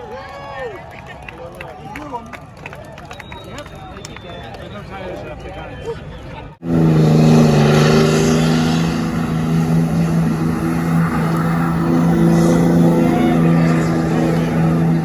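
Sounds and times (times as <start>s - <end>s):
truck engine droning: 6.6s - 15.0s.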